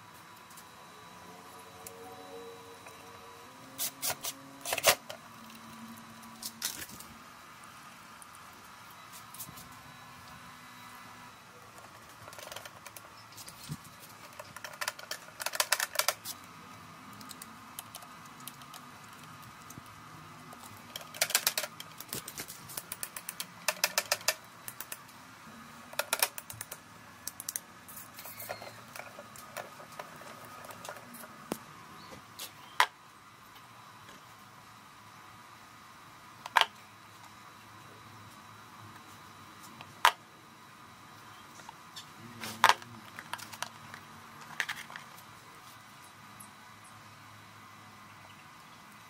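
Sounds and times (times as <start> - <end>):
faint steady hum: 0.0 - 49.0
rapid mechanical clicking: 14.0 - 16.3, 17.1 - 25.0.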